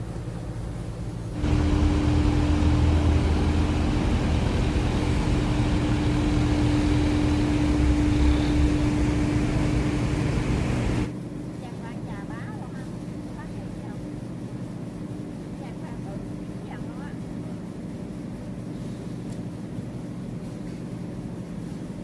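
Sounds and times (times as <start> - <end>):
boat engine rumbling: 0.0 - 11.1.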